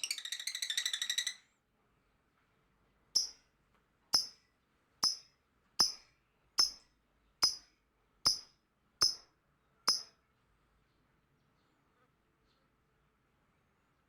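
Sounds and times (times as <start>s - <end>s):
lovebird shrill chirps: 0.0s - 1.5s.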